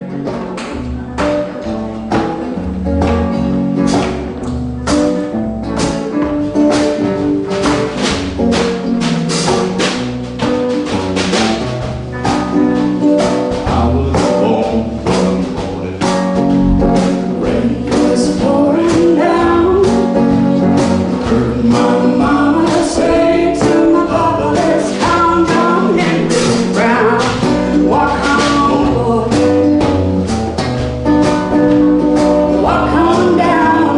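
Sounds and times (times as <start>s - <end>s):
strummed acoustic guitar: 0.0s - 33.9s
steady percussive beat: 5.8s - 18.6s.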